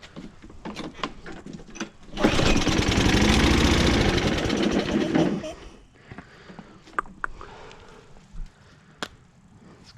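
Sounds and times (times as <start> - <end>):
lawn mower engine running: 2.0 - 5.6.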